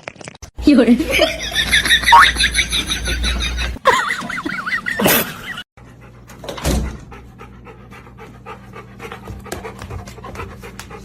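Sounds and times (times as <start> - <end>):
dog panting: 5.8 - 11.0.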